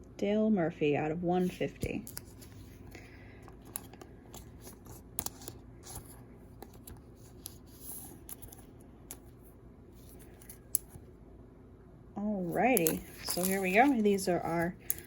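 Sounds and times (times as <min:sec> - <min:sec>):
cards rustling: 0:01.4 - 0:11.0, 0:12.4 - 0:15.0
trading cards clicking: 0:12.7 - 0:15.0.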